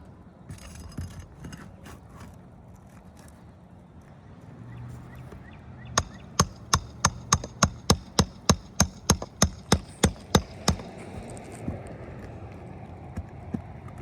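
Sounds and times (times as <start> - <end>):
hammer blows: 6.0 - 11.4.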